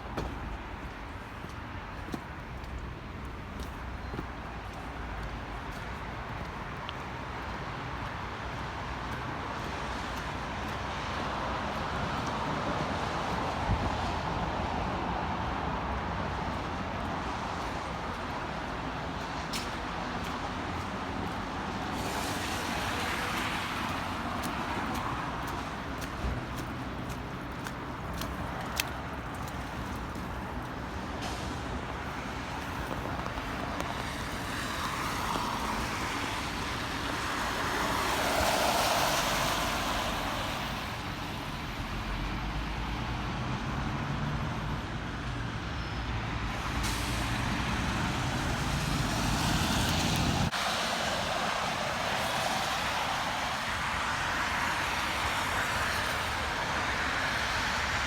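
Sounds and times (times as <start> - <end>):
tyre hiss on road: 21.8 - 24.9, 29.6 - 41.1, 46.6 - 58.0.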